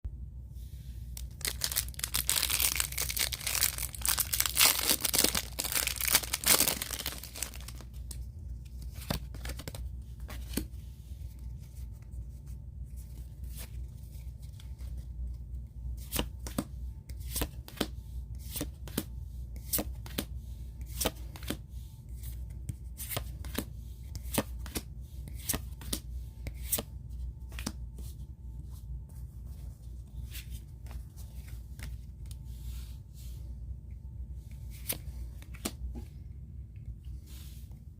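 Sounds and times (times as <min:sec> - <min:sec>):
wrapper tearing and crinkling: 0:01.2 - 0:07.8.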